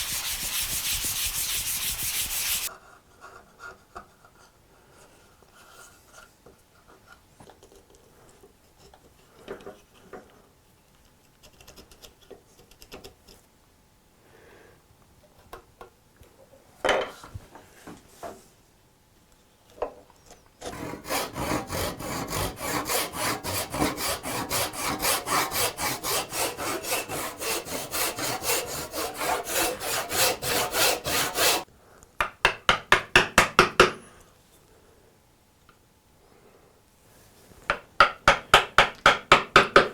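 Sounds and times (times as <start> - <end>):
hand tool strokes on hardwood: 0.0 - 2.7, 20.7 - 31.7.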